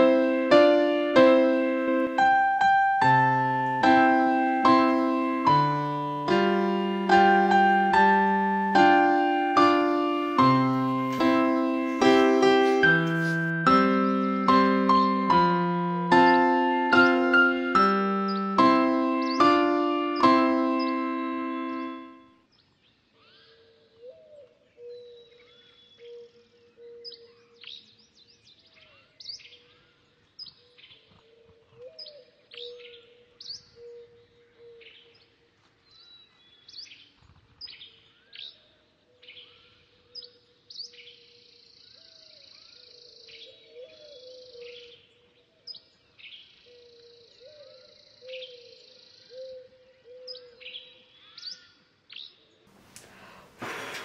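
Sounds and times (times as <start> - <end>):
birds chirping: 0.0 - 13.6, 17.8 - 22.1
brief rush of noise: 52.9 - 54.0.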